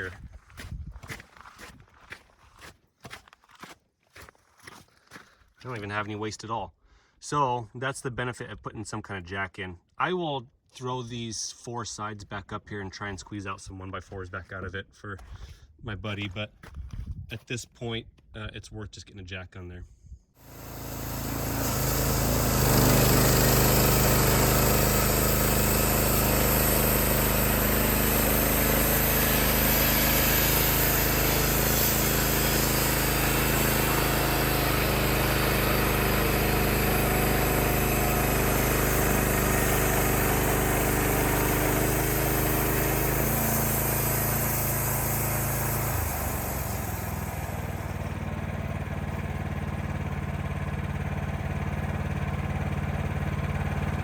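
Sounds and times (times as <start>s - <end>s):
band blade sawing through log: 20.4s - 47.9s
sawmill engine running: 20.4s - 54.0s.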